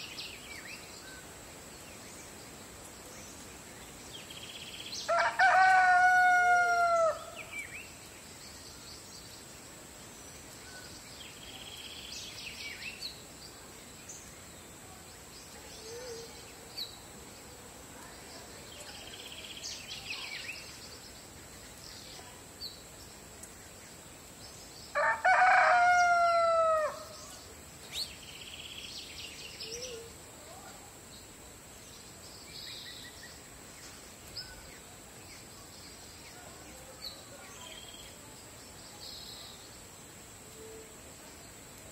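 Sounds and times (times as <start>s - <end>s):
rooster crowing: 5.1s - 7.4s, 25.0s - 27.2s.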